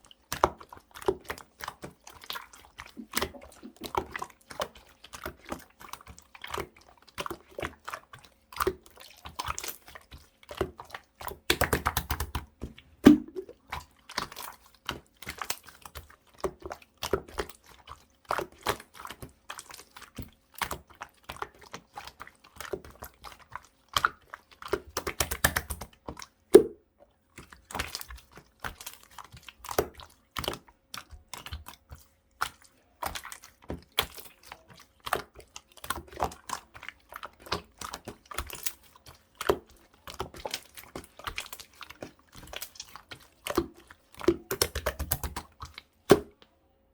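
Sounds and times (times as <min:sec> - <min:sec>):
slime squished by hand: 0:13.0 - 0:15.9.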